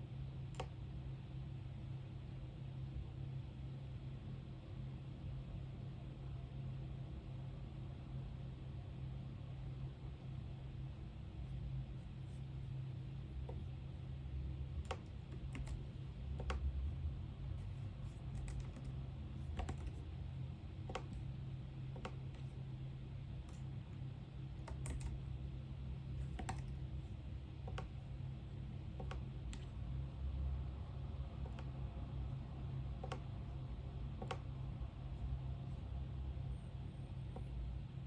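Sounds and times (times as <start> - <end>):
steady low hum: 0.0 - 38.0
keyboard key clicks: 14.8 - 16.6, 18.3 - 20.0, 20.8 - 21.2, 24.6 - 25.2, 26.2 - 26.8, 28.9 - 29.7, 33.0 - 33.3.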